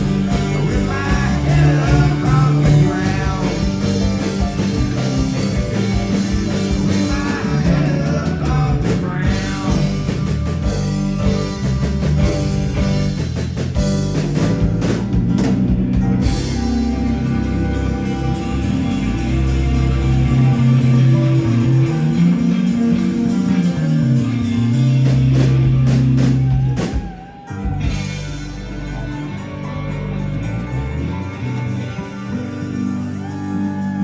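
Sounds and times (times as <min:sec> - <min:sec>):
bass guitar: 0:00.0 - 0:34.0
drum kit: 0:00.0 - 0:34.0
electric guitar: 0:00.0 - 0:34.0
person singing: 0:00.3 - 0:04.7, 0:06.5 - 0:10.8.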